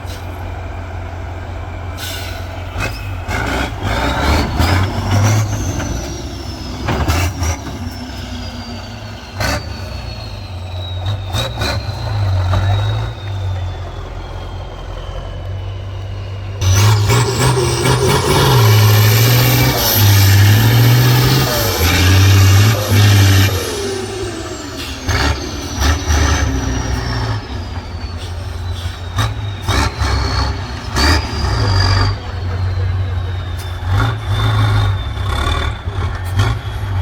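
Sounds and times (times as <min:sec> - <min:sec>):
truck engine revving: 0:00.0 - 0:37.0
high whine: 0:13.6 - 0:33.3.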